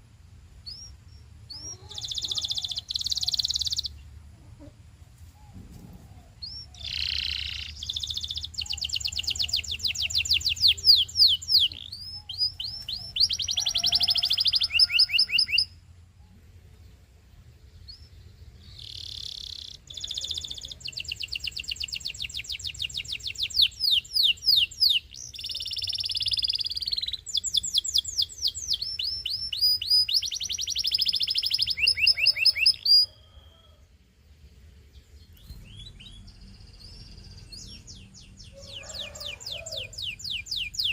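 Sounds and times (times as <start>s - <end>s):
canary singing trills: 0.6s - 4.7s, 5.5s - 15.9s, 17.6s - 33.8s, 34.9s - 40.9s.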